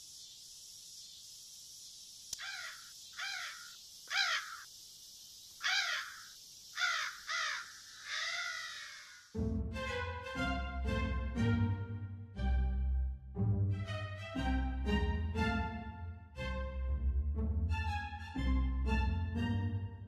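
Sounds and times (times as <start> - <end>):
steady hiss: 0.0 - 9.3
bird harsh crow-like calls: 2.4 - 4.7, 5.6 - 9.4
music: 9.3 - 20.0.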